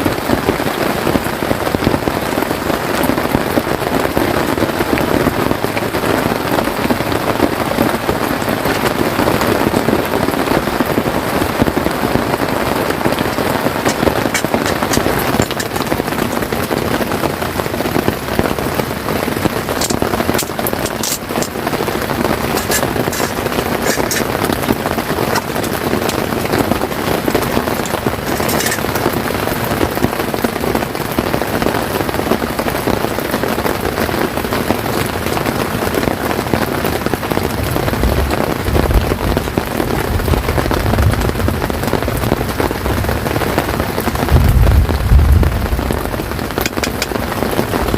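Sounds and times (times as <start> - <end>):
rain falling on a tent: 0.0 - 47.9
sharp taps: 46.6 - 47.2.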